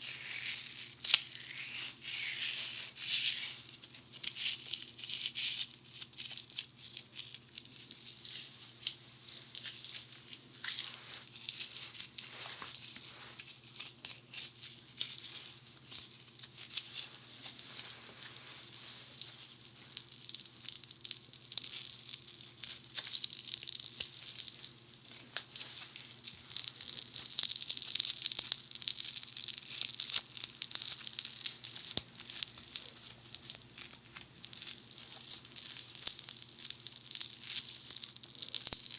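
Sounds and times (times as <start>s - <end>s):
soap foam crackling: 9.3s - 38.9s.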